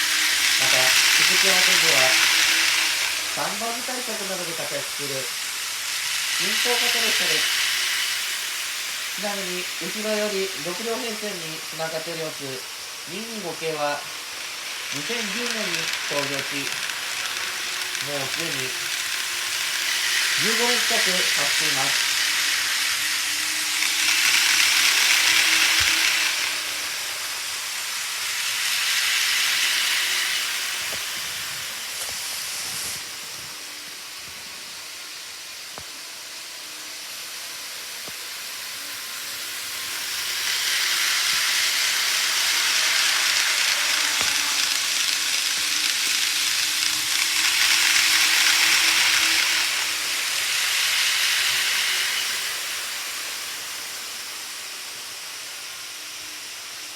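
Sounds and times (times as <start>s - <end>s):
faint motor hum: 0.0s - 56.9s
model train wheels hissing on rail: 0.0s - 56.9s.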